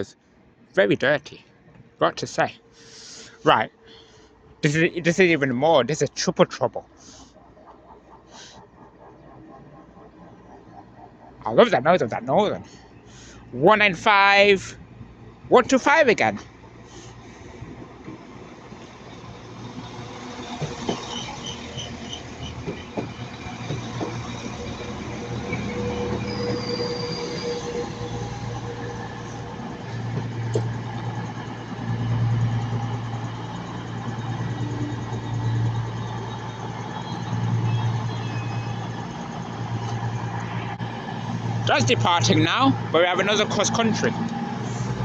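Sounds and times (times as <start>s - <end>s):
train running drone: 0.0s - 45.0s
wheels clicking over rail joints: 15.6s - 45.0s
wheel squeal: 16.8s - 45.0s.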